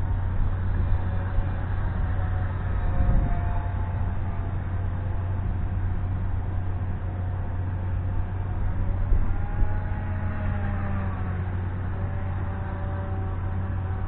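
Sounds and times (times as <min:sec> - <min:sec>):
model airplane motor whining: 0:00.0 - 0:14.0
wind rumble on microphone: 0:00.0 - 0:14.0.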